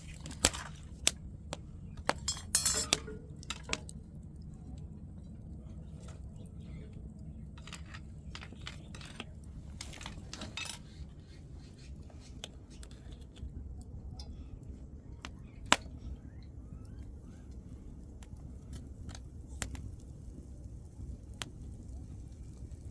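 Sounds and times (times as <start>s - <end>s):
steady low rumble: 0.0s - 22.9s
light clinks and knocks: 2.0s - 4.0s, 7.6s - 11.1s.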